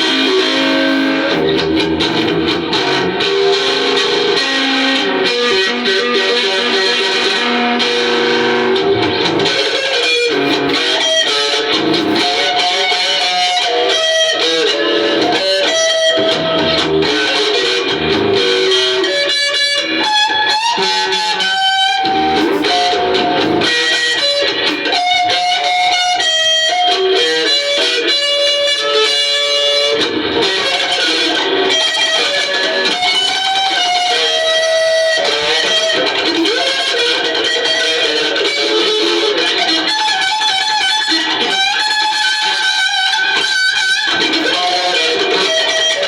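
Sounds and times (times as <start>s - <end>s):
electric guitar lead line: 0.0s - 46.0s
rhythm accompaniment: 9.0s - 13.0s.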